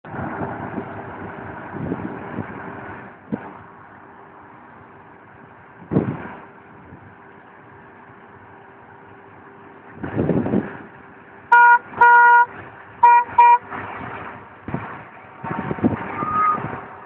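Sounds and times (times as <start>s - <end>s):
tractor engine humming: 0.0s - 17.0s
tractor horn beeps: 11.5s - 13.7s, 16.1s - 16.7s.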